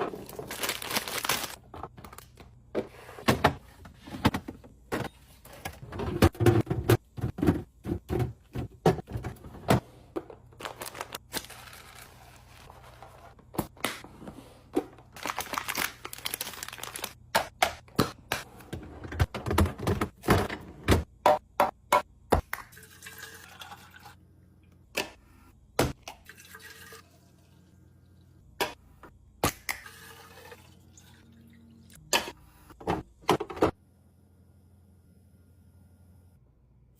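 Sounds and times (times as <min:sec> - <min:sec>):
packaging rustling: 0:00.2 - 0:01.6, 0:10.6 - 0:12.7, 0:15.2 - 0:17.2.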